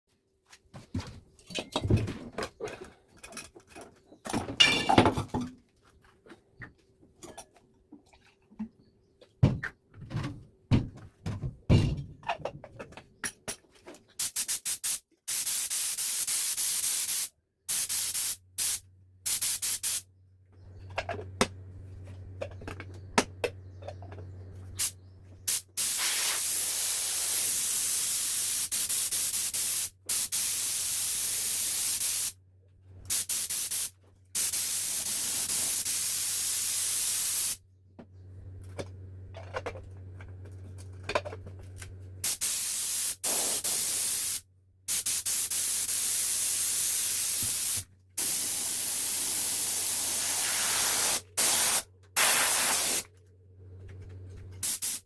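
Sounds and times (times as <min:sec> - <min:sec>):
compressed air hissing: 0:25.5 - 0:32.3, 0:42.2 - 0:53.0, 0:54.6 - 0:55.0.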